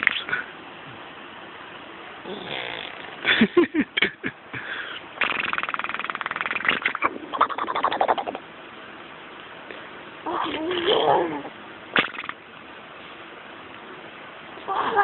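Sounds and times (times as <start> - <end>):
person making fart noises: 0.0 - 0.3, 2.3 - 3.2, 5.2 - 7.2, 12.0 - 12.4.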